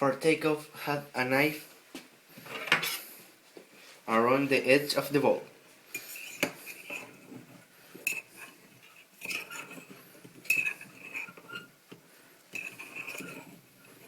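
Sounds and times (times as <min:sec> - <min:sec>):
knife scraping a bowl: 0:02.4 - 0:03.1, 0:05.9 - 0:14.0.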